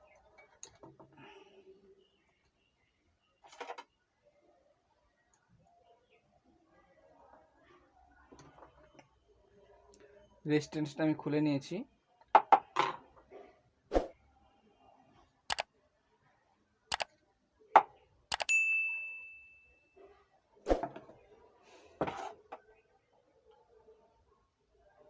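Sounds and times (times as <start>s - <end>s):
metal object ringing ding: 18.5s - 19.9s.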